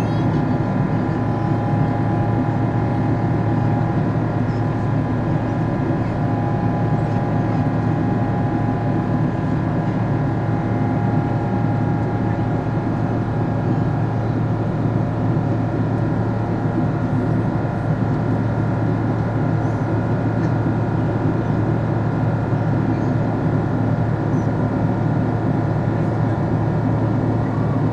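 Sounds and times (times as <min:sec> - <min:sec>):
jet engine noise inside aircraft: 0:00.0 - 0:27.9.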